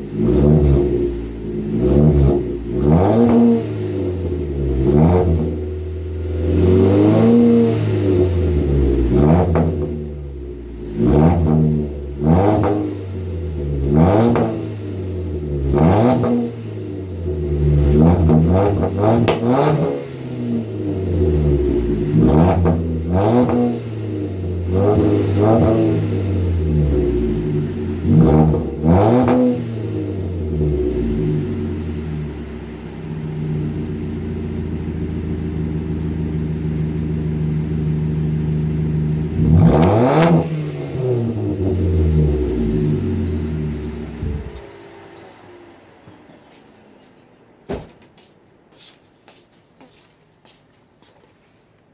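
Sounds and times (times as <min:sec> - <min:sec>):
car engine revving and idling: 0:00.0 - 0:47.0.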